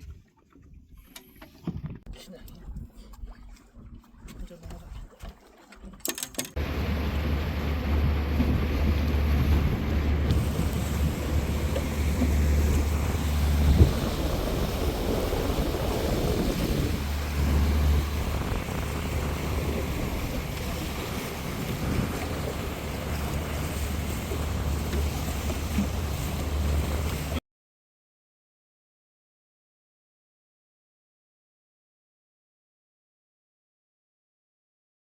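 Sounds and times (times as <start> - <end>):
rushing water: 2.4 - 27.4
wind buffeting microphone: 6.6 - 27.4.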